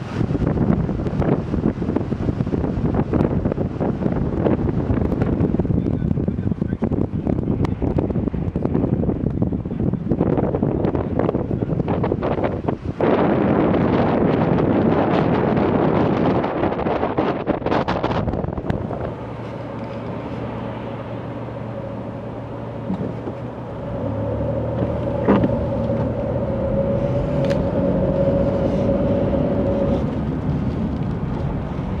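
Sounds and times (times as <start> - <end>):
vehicle road noise rumble: 0.0 - 32.0
wind buffeting microphone: 0.0 - 32.0
steady whine: 18.0 - 32.0.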